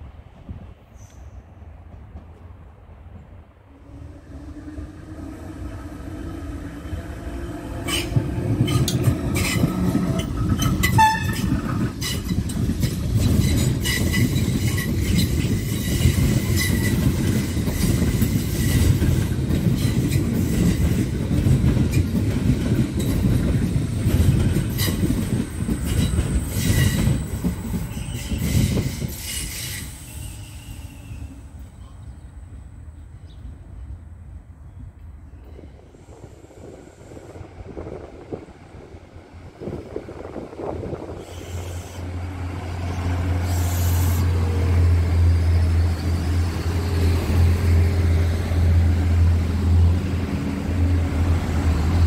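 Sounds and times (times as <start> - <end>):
electric train rumble: 0.0 - 52.0
wheels clattering over rail joints: 7.9 - 28.2.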